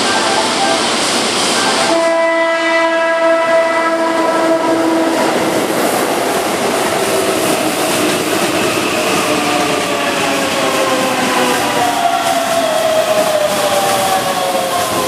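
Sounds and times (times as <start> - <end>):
train horn blast: 0.0 - 5.3
train rumble and wheel clatter: 0.0 - 15.0.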